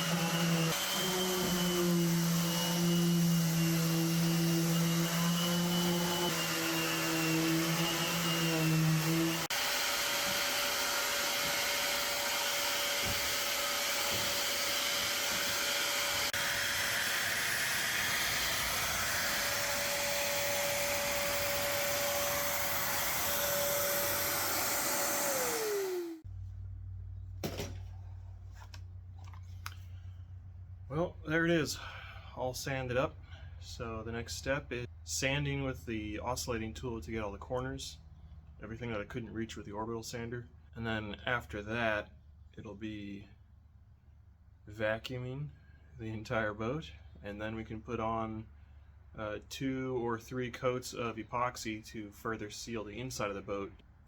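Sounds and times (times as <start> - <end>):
orbital sander running: 0.0 - 26.2.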